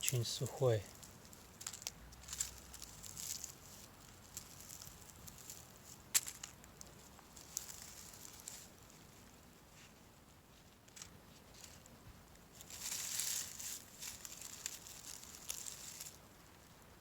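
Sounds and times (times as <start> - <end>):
dry moss crackling and rustling: 0.0 - 17.0
twigs snapping: 0.9 - 3.6, 4.2 - 8.7, 12.6 - 16.2.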